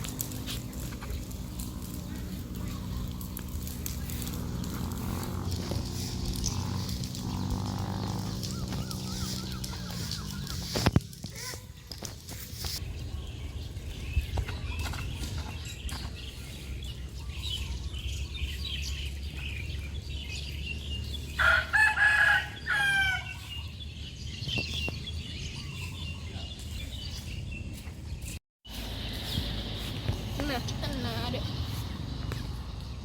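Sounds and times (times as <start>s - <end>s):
low steady rumble: 0.0s - 10.7s
fowl calling: 8.3s - 11.6s
rooster crowing: 21.4s - 23.5s.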